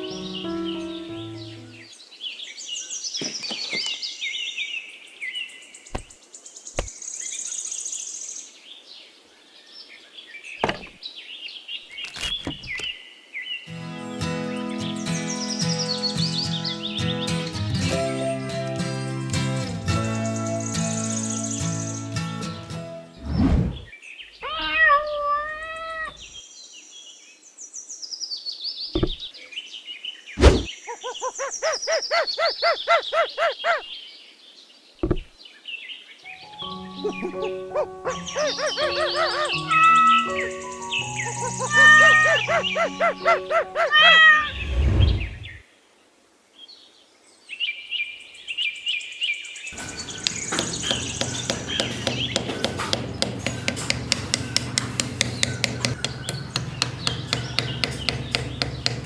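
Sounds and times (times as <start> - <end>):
small birds chirping: 0.0 - 13.5, 49.7 - 59.0
songbirds chirping and singing: 0.0 - 22.2, 26.0 - 44.0, 47.6 - 59.0
dull thud: 5.9 - 6.2, 10.6 - 11.0
sharp knocks: 5.9 - 6.2, 10.6 - 11.0, 12.1 - 12.9, 49.8 - 59.0
animal meowing call: 24.4 - 26.3, 41.6 - 43.1, 43.8 - 44.6
buzzy bird trill: 49.8 - 59.0.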